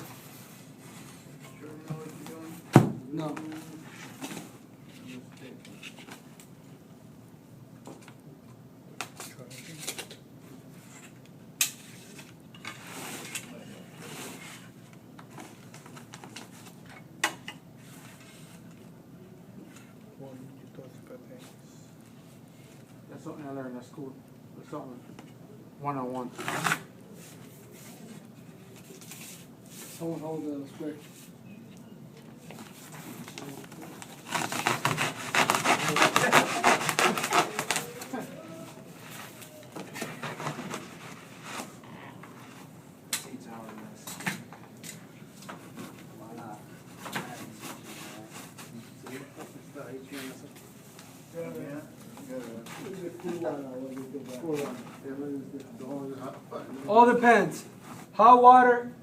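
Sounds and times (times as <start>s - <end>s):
scraping and rustling: 32.4s - 42.8s
knife scraping duct board: 34.2s - 38.1s.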